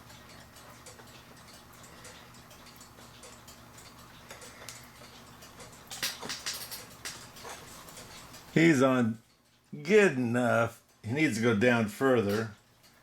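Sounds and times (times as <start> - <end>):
clicks and knocks on clock: 0.0 - 8.5
mechanical clock ticking: 0.0 - 13.0.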